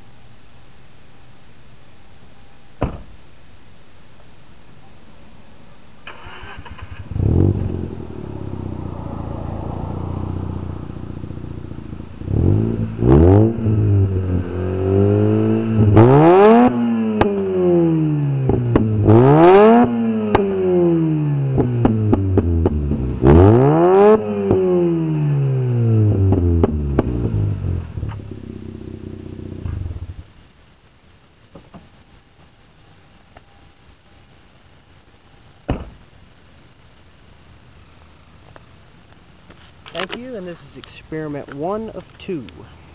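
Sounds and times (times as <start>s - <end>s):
engine revving: 6.1s - 30.0s.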